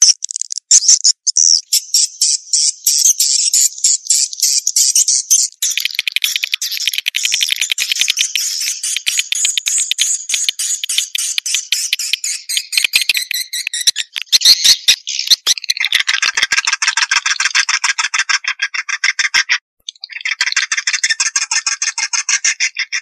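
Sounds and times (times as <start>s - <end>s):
swiftlet call rapid chirps: 4.5s - 17.9s.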